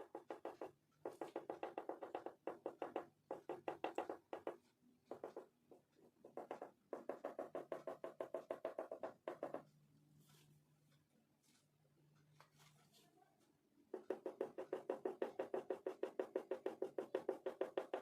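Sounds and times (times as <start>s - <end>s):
oil pastel scribbling on paper: 14.0s - 18.0s.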